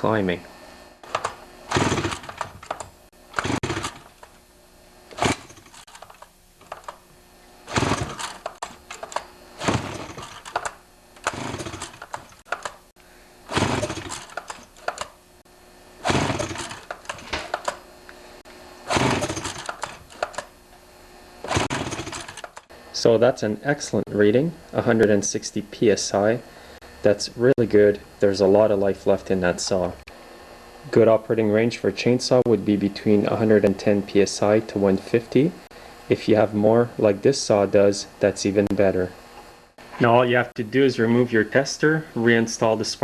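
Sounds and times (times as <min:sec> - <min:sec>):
chainsaw recoil starter pulls: 0:01.0 - 0:04.4, 0:05.1 - 0:07.0, 0:07.6 - 0:12.8, 0:13.5 - 0:15.2, 0:16.0 - 0:17.8, 0:18.9 - 0:20.5, 0:21.4 - 0:22.7.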